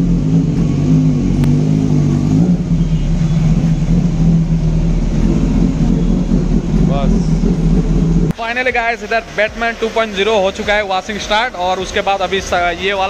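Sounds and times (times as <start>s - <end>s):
motorcycle engine at low revs: 0.0s - 8.4s.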